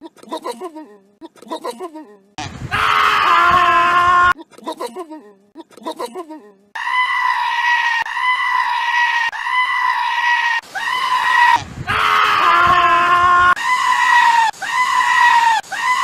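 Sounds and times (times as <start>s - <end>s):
goat screaming: 2.7s - 4.4s, 6.8s - 16.0s.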